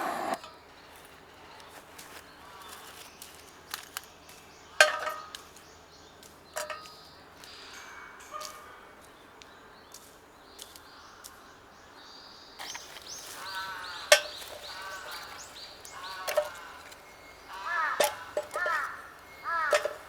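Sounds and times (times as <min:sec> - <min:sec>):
birds chirping and calling: 0:00.0 - 0:00.4, 0:12.6 - 0:20.0.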